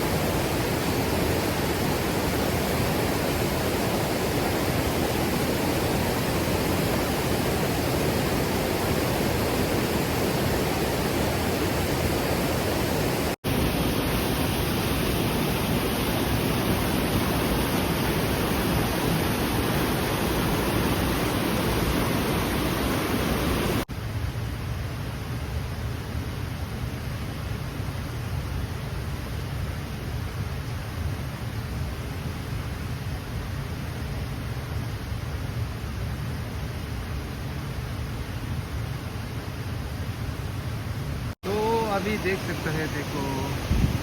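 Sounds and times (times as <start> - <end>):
water rushing: 0.0 - 23.9, 41.3 - 44.0.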